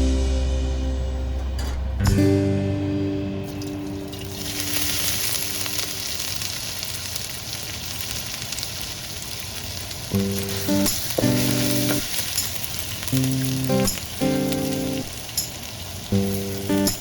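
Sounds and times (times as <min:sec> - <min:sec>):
food sizzling in hot oil: 0:03.4 - 0:17.0.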